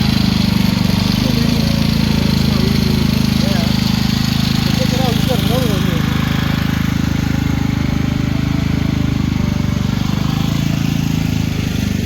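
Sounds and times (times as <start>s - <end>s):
generator engine humming: 0.0s - 12.0s.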